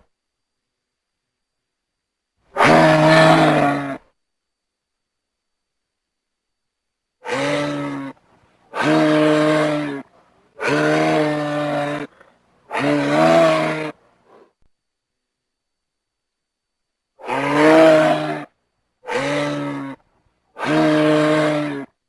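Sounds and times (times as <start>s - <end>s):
animal crying: 2.6s - 4.0s, 7.2s - 14.0s, 17.2s - 20.0s, 20.6s - 21.9s.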